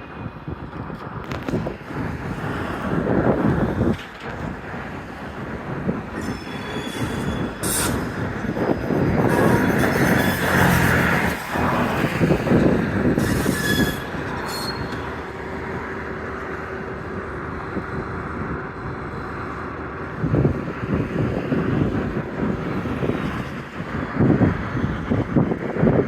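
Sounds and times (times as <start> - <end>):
freight cars rolling on rails: 0.3 - 26.0
wheel squeals: 6.1 - 15.2.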